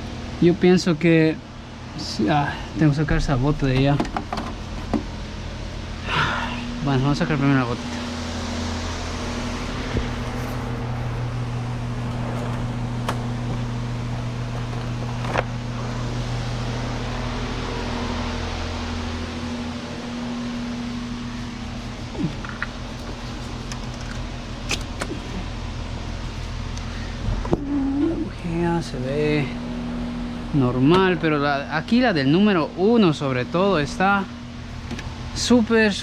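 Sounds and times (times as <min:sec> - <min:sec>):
machine humming: 0:01.2 - 0:28.0.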